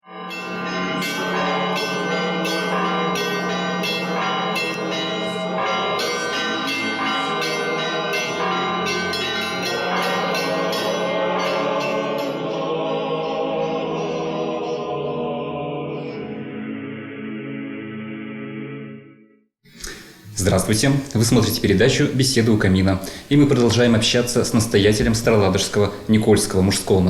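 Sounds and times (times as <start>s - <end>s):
church bells ringing: 0.0s - 15.3s.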